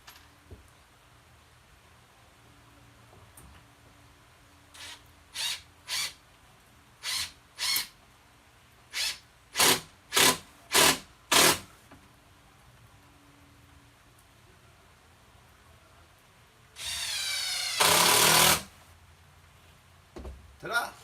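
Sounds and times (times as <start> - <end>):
impact driver driving screws: 9.0 - 11.7, 16.8 - 18.7.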